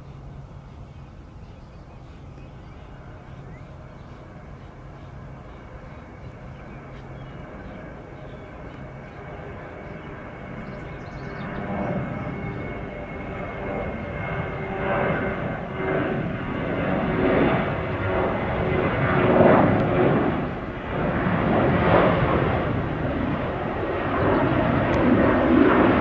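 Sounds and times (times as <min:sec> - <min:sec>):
jet airliner engine rumble: 0:00.0 - 0:26.0
high jet whine: 0:09.4 - 0:26.0.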